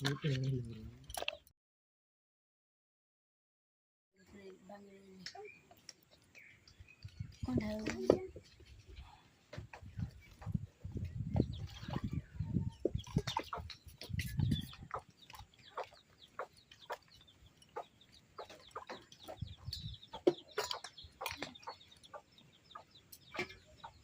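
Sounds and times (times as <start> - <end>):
chickens clucking: 5.2 - 24.0.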